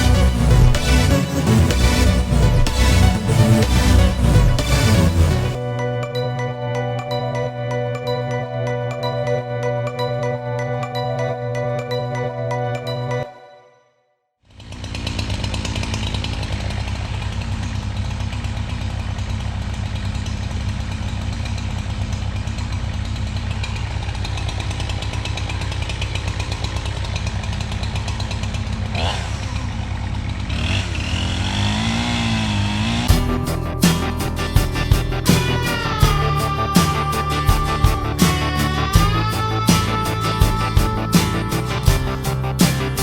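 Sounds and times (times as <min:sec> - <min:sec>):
chainsaw engine running: 0:00.0 - 0:05.6, 0:14.5 - 0:43.0.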